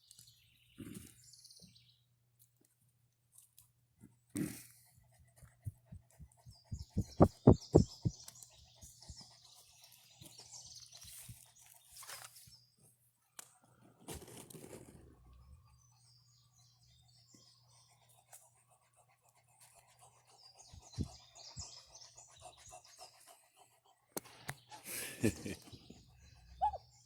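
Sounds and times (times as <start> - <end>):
small birds chirping: 0.0 - 2.7, 4.8 - 14.0, 14.6 - 27.0
loud thumps: 6.8 - 8.2
brief rustle: 11.0 - 12.6.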